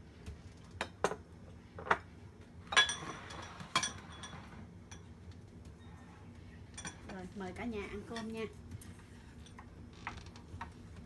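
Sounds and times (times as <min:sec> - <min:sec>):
tableware clinking and knocking: 0:02.7 - 0:04.5.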